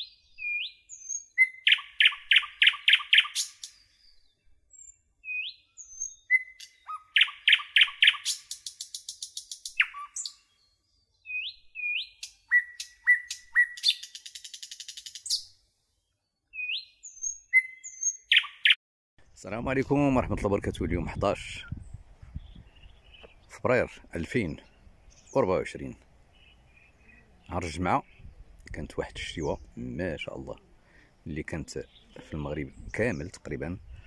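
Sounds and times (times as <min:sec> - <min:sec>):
songbird singing: 0:00.0 - 0:34.0.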